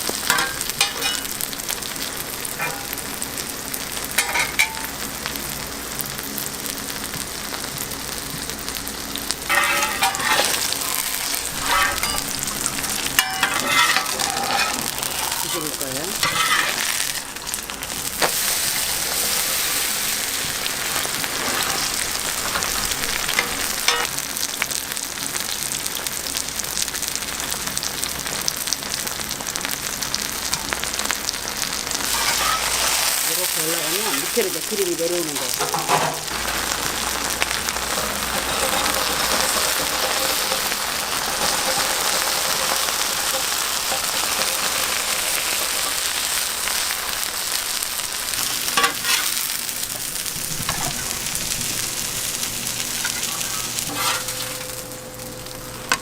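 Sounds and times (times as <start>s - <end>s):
batter sizzling in oil: 0.0s - 56.0s
clatter and scraping: 9.4s - 12.5s, 13.2s - 15.0s, 16.2s - 17.2s, 32.0s - 33.2s, 35.6s - 36.8s, 37.4s - 44.2s, 48.7s - 49.4s, 53.0s - 54.8s.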